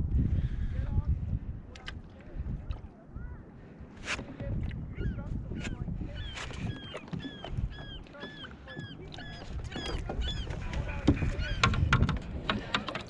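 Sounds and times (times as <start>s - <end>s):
bird calling rapidly: 4.9s - 11.9s
sharp clicks and knocks: 11.0s - 13.0s.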